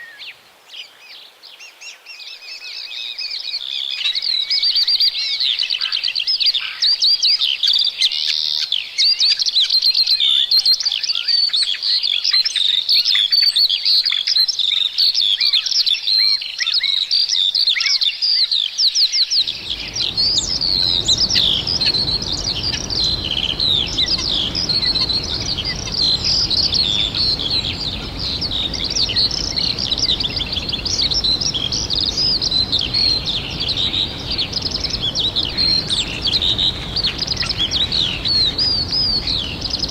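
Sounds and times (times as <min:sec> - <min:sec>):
small birds chirping: 0:18.6 - 0:39.9
low background rumble: 0:19.5 - 0:39.9.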